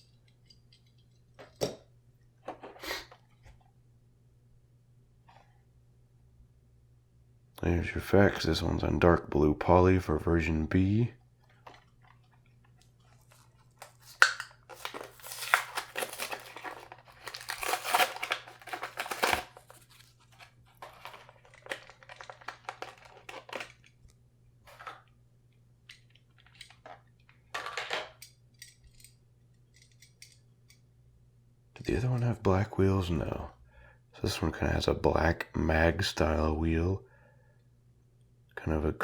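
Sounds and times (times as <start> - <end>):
plastic packaging crinkling and tearing: 13.0 - 24.0.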